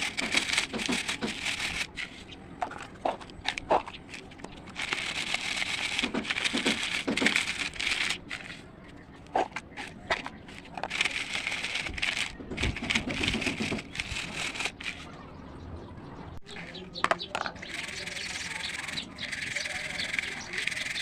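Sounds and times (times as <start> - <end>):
brittle crunching and crackling: 0.0 - 2.0, 3.3 - 8.5.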